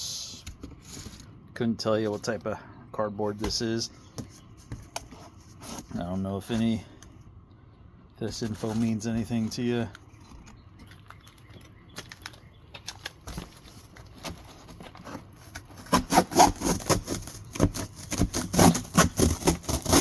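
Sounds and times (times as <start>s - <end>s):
knife sawing through cardboard: 15.0s - 20.0s.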